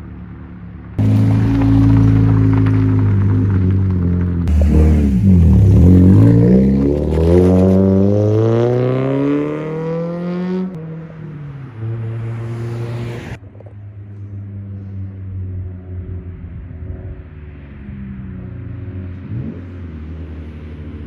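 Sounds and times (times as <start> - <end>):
car engine revving: 1.0 - 13.4.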